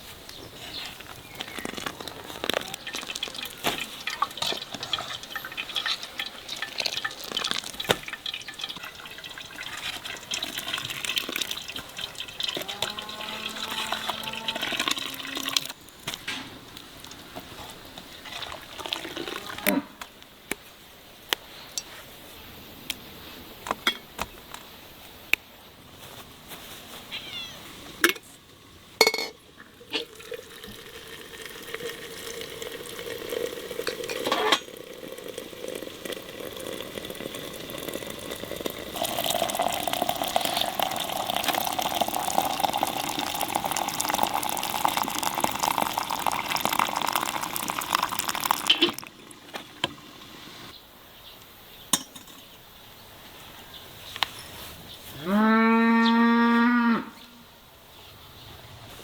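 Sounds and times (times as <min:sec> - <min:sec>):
water running and splashing: 0:00.9 - 0:16.2, 0:16.8 - 0:19.6, 0:29.4 - 0:50.7.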